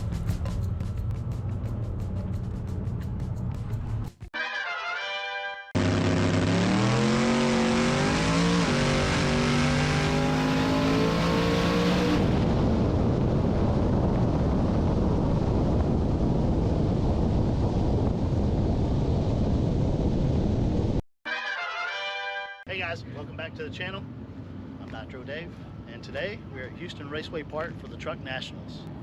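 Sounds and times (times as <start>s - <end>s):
truck engine at full throttle: 5.8s - 18.8s.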